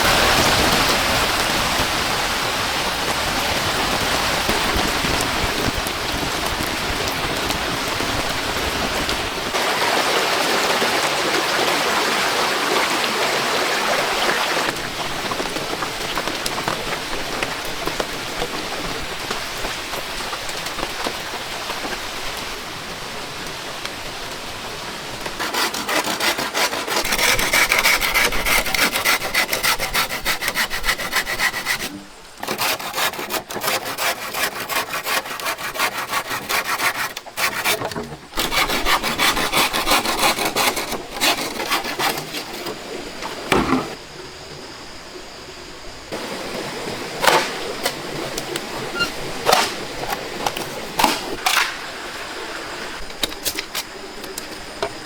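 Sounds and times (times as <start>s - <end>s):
saw cutting wood: 25.4s - 44.0s, 47.1s - 51.8s
steady hiss: 36.6s - 55.0s.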